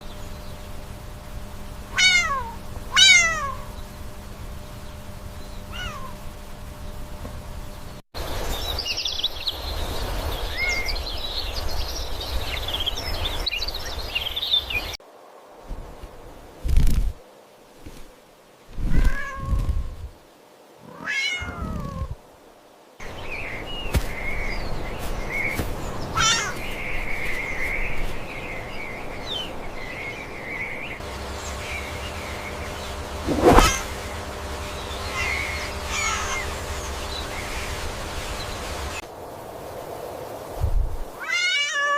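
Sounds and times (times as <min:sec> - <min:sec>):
cat meowing: 0:02.0 - 0:03.6, 0:05.7 - 0:06.1, 0:18.9 - 0:19.5, 0:20.9 - 0:22.1, 0:26.2 - 0:26.6, 0:41.2 - 0:41.9
kitten mewing: 0:02.0 - 0:03.6.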